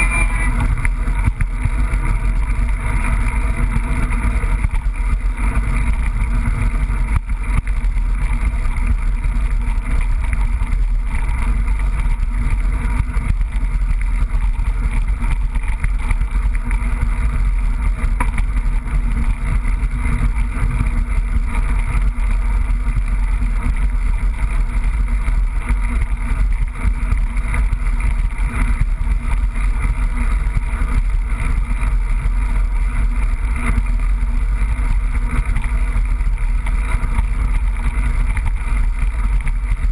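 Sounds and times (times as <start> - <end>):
bike tyres on trail: 0.0 - 39.9
bike knocks and rattles: 0.6 - 31.9.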